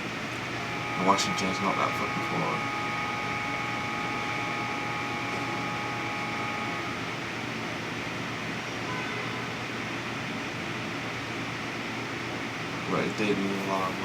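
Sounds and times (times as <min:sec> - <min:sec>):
faint whining tones: 0:00.0 - 0:07.7
fan whooshing hum: 0:00.0 - 0:08.8, 0:09.6 - 0:14.0.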